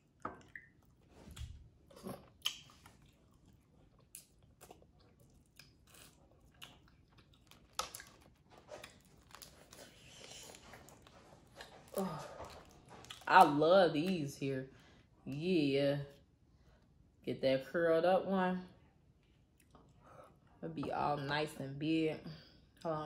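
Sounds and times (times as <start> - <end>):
chewing and smacking: 0.0 - 13.6, 19.2 - 20.6.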